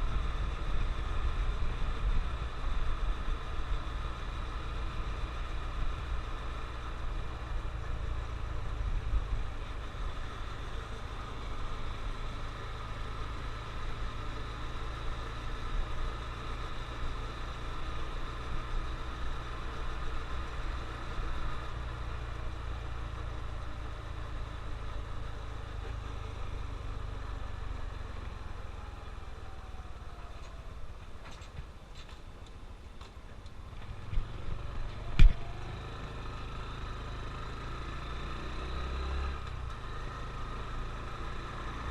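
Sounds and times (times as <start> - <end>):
motorcycle engine running: 33.6 - 41.9.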